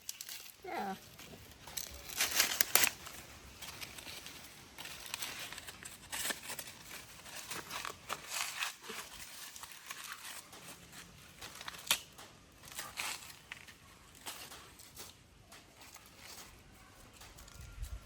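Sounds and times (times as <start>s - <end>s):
husk snapping: 0.0s - 4.1s, 11.3s - 16.6s
dry corn husks rustling and tearing: 0.0s - 18.0s.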